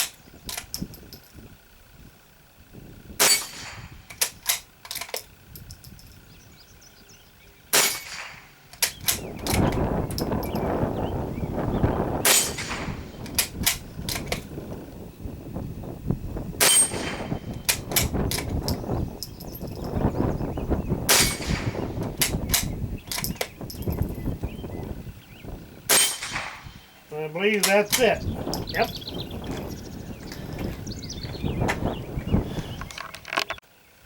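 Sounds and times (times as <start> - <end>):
rifle shots: 3.2 - 4.8, 7.7 - 9.7, 12.2 - 14.3, 16.6 - 18.1, 21.1 - 23.2, 25.9 - 28.2
rifle bolt clicks: 4.1 - 5.9, 22.1 - 23.5.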